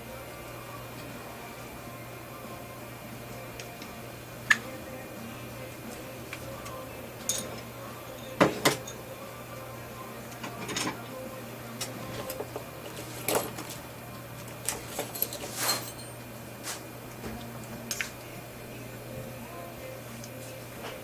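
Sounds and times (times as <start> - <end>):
steady low hum: 0.0 - 21.0
metal dental instruments clinking: 5.9 - 7.8, 11.8 - 16.3.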